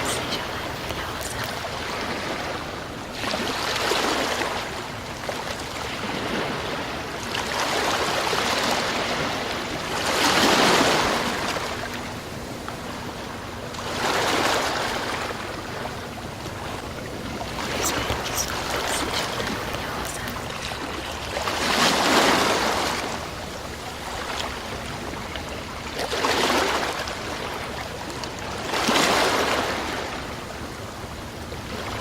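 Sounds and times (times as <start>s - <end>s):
sea waves breaking on shore: 0.0s - 32.0s.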